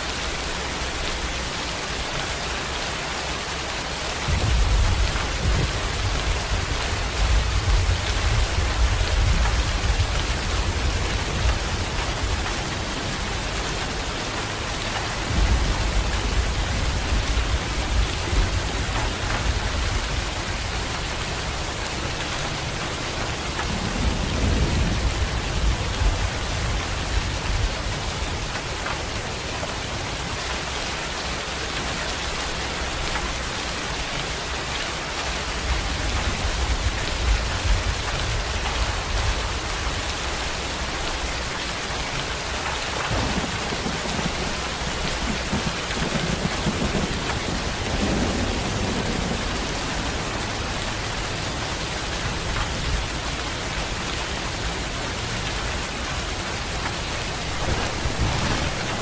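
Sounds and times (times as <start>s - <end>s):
rain pattering: 0.0s - 59.0s
low rumble of thunder: 4.2s - 29.0s, 43.0s - 53.1s, 56.6s - 59.0s.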